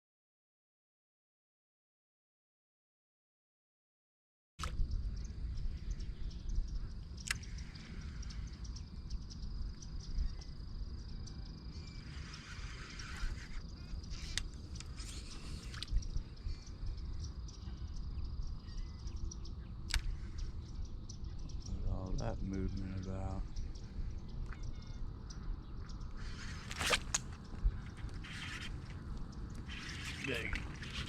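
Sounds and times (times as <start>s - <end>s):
faint bird calls: 4.6s - 31.0s
wind rumble on microphone: 4.6s - 31.0s
sharp clicks: 7.2s - 7.8s, 19.9s - 20.2s.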